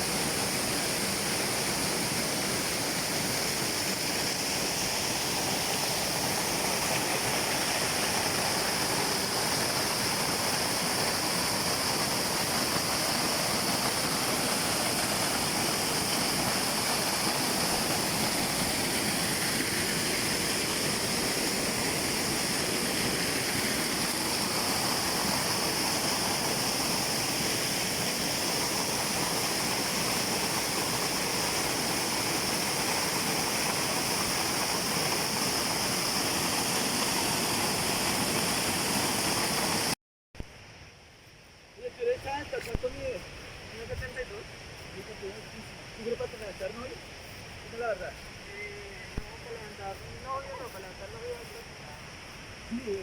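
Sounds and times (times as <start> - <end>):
rushing water: 0.0 - 40.0, 41.2 - 53.0.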